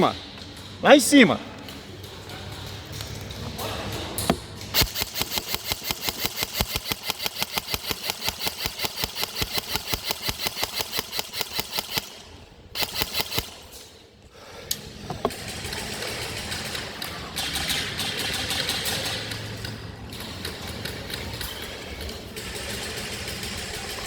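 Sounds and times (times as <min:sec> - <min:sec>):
airsoft gun rapid shots: 0:04.7 - 0:13.8, 0:22.4 - 0:24.0.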